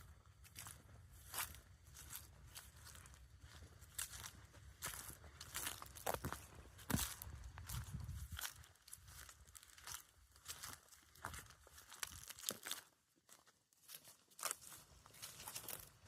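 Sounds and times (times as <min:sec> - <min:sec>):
faint crackling and crunching: 0:00.0 - 0:16.0.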